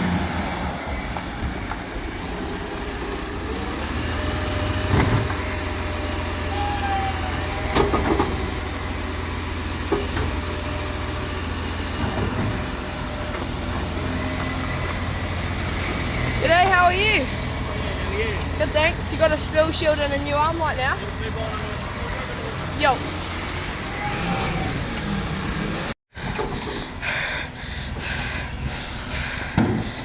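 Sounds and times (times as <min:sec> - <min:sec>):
garbage truck engine running: 0:00.0 - 0:30.0.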